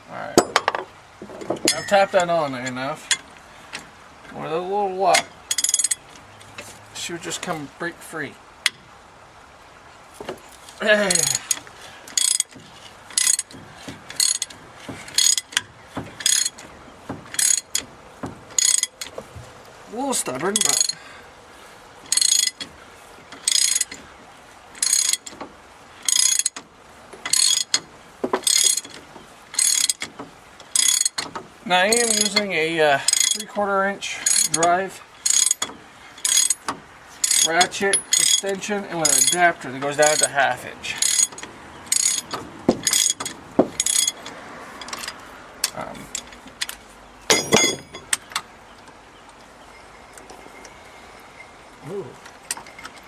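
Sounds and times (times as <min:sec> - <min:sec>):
ratchet clicking: 0:11.1 - 0:16.7, 0:17.3 - 0:17.9, 0:18.5 - 0:19.2, 0:20.6 - 0:21.0, 0:22.1 - 0:22.7, 0:23.4 - 0:24.0, 0:24.8 - 0:33.5, 0:34.2 - 0:39.4, 0:40.0 - 0:40.4, 0:41.0 - 0:48.4.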